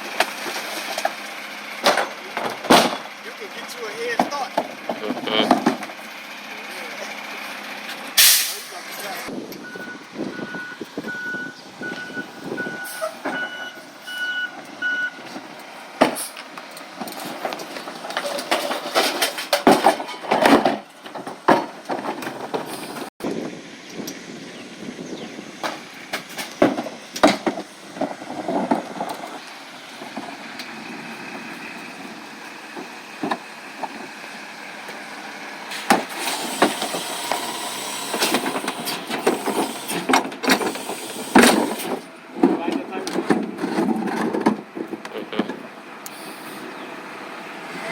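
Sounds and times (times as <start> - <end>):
truck knocks and clatter: 0.0 - 6.1, 9.3 - 24.2, 25.1 - 45.8
truck engine running: 0.0 - 47.9
truck reversing beeper: 9.5 - 15.4.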